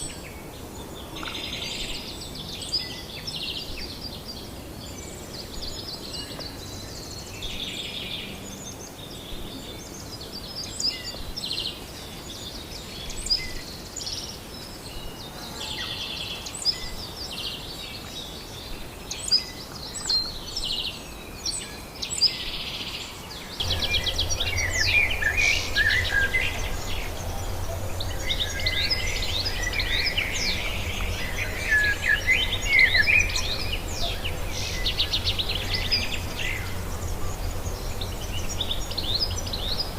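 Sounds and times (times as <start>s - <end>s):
wild birds chirping: 0.0s - 39.9s
steady low hum: 23.6s - 39.9s.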